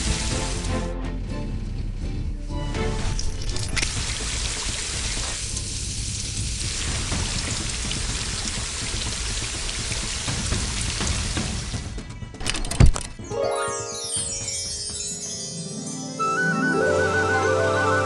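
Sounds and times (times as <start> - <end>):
rushing hiss of falling water: 0.0 - 0.8, 3.7 - 11.8.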